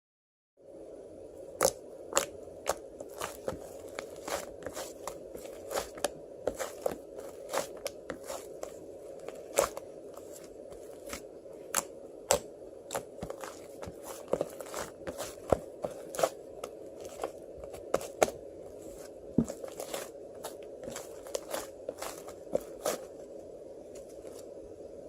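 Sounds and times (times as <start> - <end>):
steady low hum: 0.6 - 25.0
frozen ice cream pellets crunching: 2.2 - 11.2.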